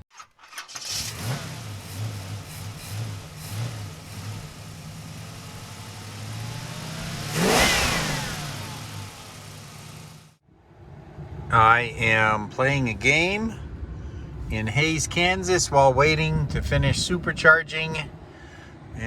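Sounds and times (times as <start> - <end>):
car engines revving: 0.8 - 10.4
car passing close: 0.8 - 12.3.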